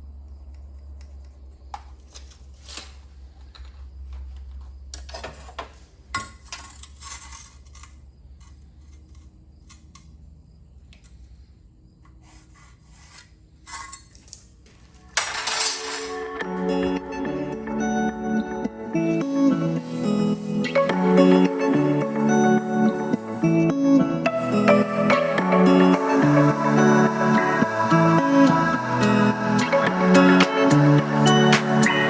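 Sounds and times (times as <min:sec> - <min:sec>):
stone pieces scraping and clinking: 0:06.2 - 0:09.3
music: 0:15.7 - 0:32.0.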